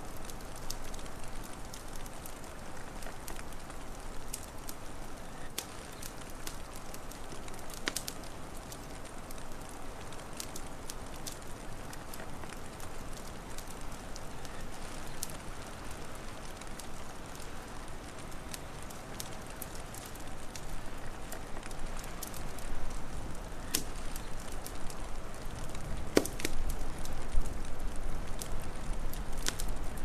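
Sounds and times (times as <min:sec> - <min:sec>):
wood fire crackling: 0:00.0 - 0:30.0
fire pops: 0:05.4 - 0:15.6, 0:18.1 - 0:30.0.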